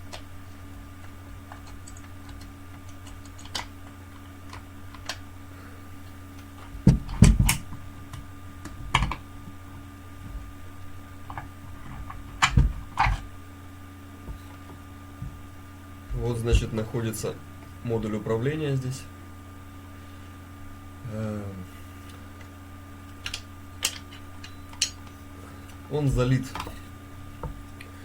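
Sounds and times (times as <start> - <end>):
steady low hum: 0.0 - 28.0
plastic and metal parts clicking: 1.5 - 5.2, 23.1 - 25.8.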